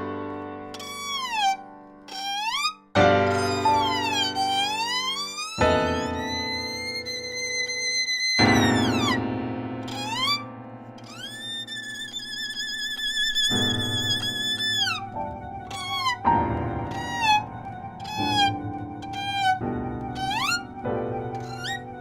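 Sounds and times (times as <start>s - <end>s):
high sliding melody: 0.7s - 22.0s.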